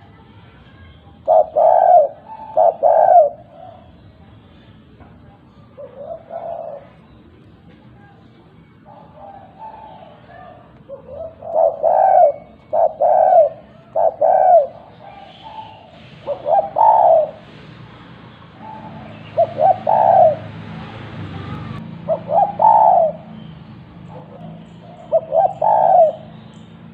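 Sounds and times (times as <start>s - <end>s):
dove cooing: 1.2s - 3.9s, 5.8s - 7.0s, 8.8s - 17.7s, 18.6s - 20.8s, 22.0s - 23.4s, 24.0s - 26.4s.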